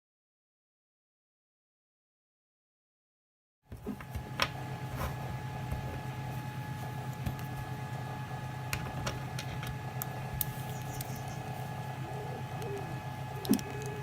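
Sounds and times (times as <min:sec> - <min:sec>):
steady mechanical hum: 0:03.7 - 0:14.0
high whining tones: 0:09.7 - 0:14.0.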